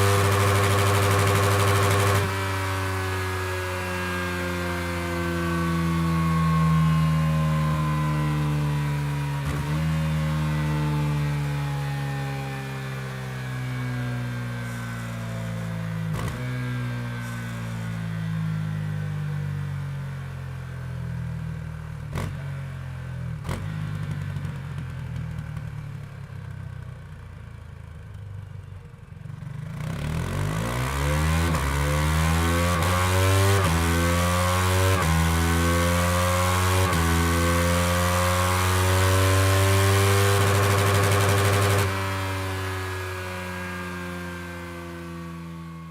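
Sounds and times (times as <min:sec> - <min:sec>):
motorcycle engine revving: 0:00.0 - 0:07.0, 0:16.0 - 0:17.3, 0:29.5 - 0:45.3.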